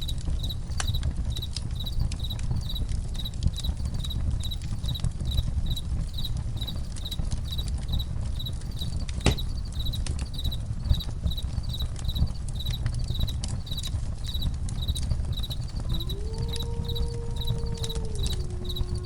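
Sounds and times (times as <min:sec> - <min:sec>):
campfire crackling: 0:00.0 - 0:19.0
crickets chirping: 0:00.0 - 0:19.0
wolf howling: 0:15.6 - 0:19.0.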